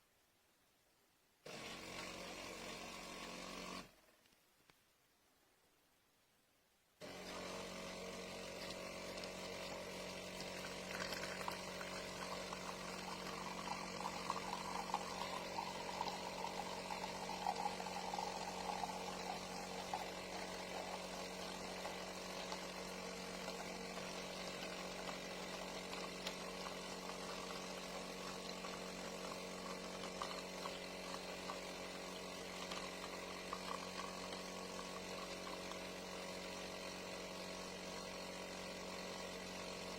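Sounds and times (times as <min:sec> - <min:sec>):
espresso machine humming: 0:01.5 - 0:04.0, 0:07.0 - 0:39.9
liquid pouring: 0:08.5 - 0:36.2.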